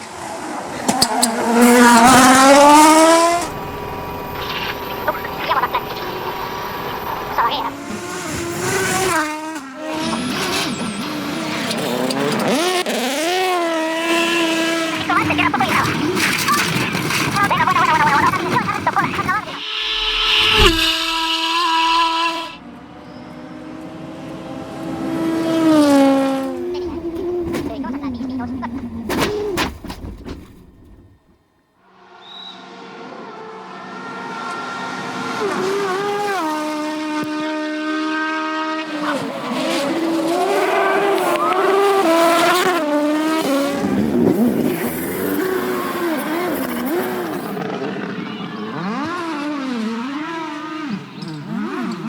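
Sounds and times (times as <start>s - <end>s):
rally car engine at high revs: 0.0s - 29.9s, 32.8s - 52.0s.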